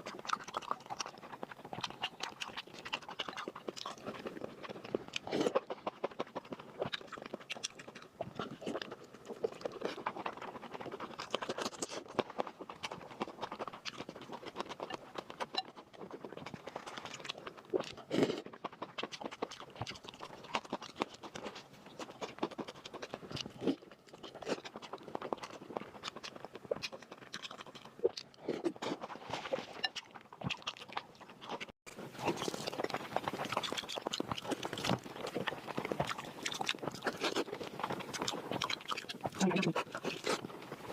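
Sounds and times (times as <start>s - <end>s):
person chewing and mouth sounds: 0.0s - 40.9s.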